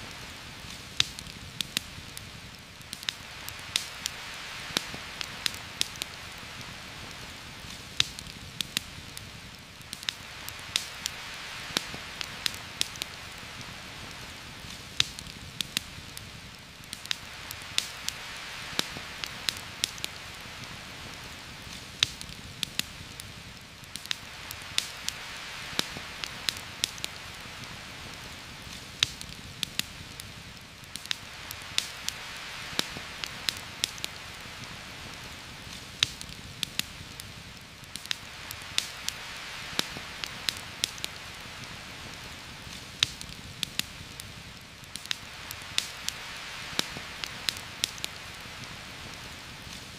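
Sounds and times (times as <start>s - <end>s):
heavy rain on leaves: 0.0s - 49.9s
sharp ticks and pops: 0.6s - 6.7s, 7.6s - 20.8s, 21.7s - 27.7s, 28.7s - 34.8s, 35.6s - 41.8s, 42.6s - 49.9s.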